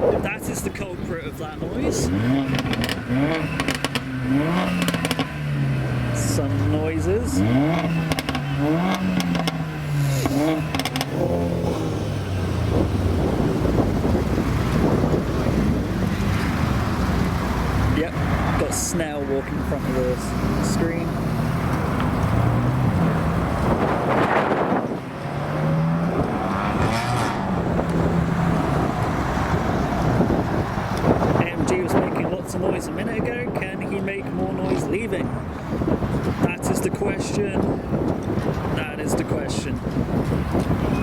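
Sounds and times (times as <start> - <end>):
road and wind noise: 0.0 - 41.0
car engine pulling away: 1.3 - 33.7.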